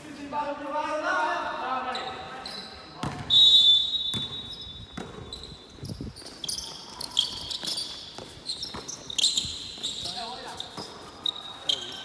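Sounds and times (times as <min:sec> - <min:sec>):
sneakers squeaking on floor: 0:01.8 - 0:12.0
basketball bouncing: 0:03.0 - 0:03.3.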